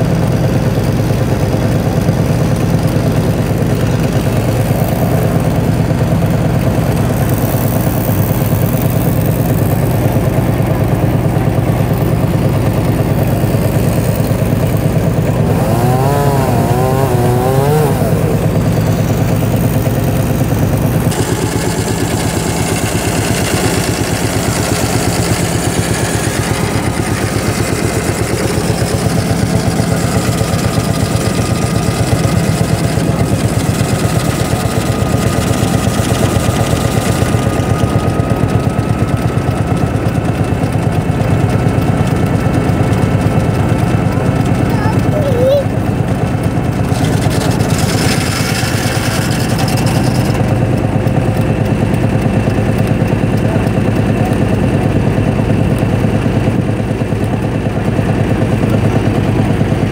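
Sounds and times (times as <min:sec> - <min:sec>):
tractor engine running: 0:00.0 - 0:59.9
circular saw: 0:02.6 - 0:39.8, 0:46.6 - 0:51.6.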